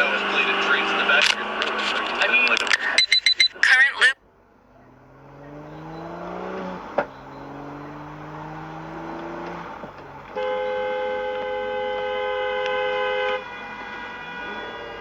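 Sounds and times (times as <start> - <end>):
two-tone car horn: 0.0 - 3.5, 8.6 - 15.0
car engine running: 0.0 - 15.0.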